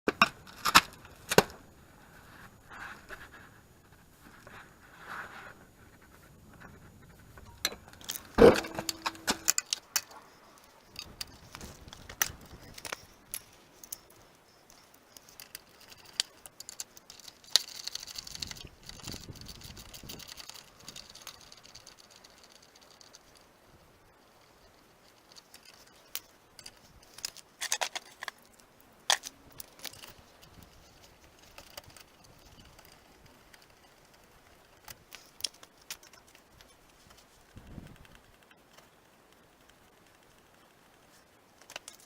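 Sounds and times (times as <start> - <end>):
metal tools clinking: 7.4 - 18.6.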